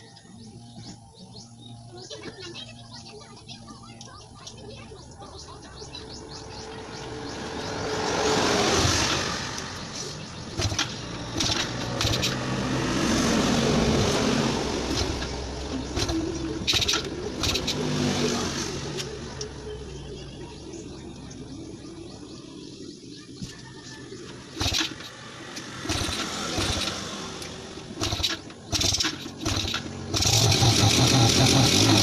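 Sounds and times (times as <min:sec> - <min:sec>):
motor vehicle engine: 0:00.0 - 0:32.0
sharp clicks: 0:08.8 - 0:12.6, 0:14.9 - 0:18.0, 0:24.6 - 0:32.0.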